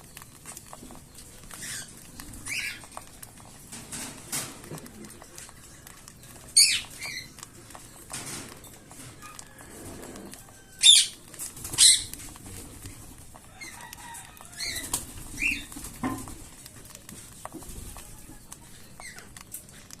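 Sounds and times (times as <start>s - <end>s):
cockatiels screeching and chirping: 1.5s - 3.0s, 6.5s - 7.4s, 9.0s - 16.2s, 17.6s - 19.3s
wings fluttering: 8.1s - 16.5s, 17.3s - 19.7s.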